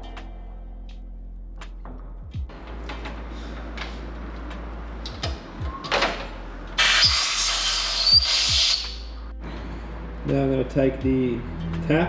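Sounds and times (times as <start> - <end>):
compressed air blow gun hissing: 6.8 - 9.1.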